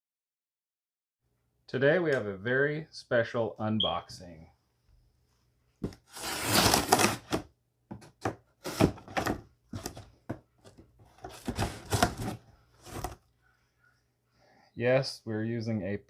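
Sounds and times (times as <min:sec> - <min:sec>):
knife slicing tape and cardboard: 0:05.9 - 0:07.4.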